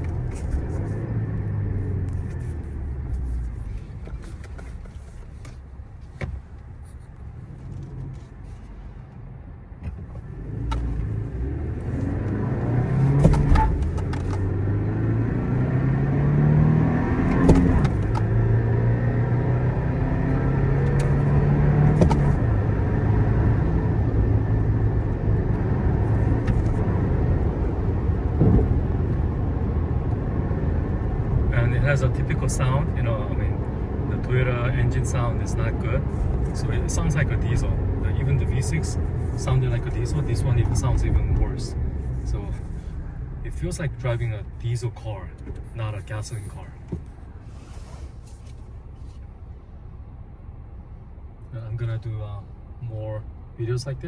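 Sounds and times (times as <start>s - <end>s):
truck engine accelerating through gears: 0.0s - 4.3s, 10.2s - 46.8s.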